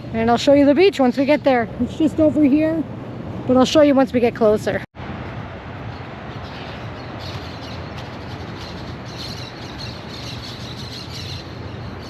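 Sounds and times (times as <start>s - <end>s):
outdoor background noise: 0.0s - 12.0s
birds chirping: 5.8s - 12.0s.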